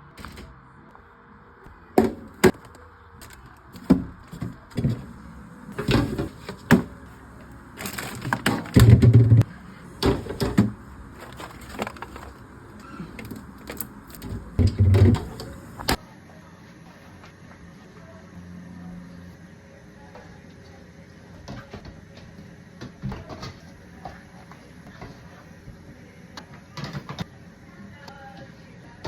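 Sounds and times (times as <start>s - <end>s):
objects knocking and clattering: 3.8s - 16.0s.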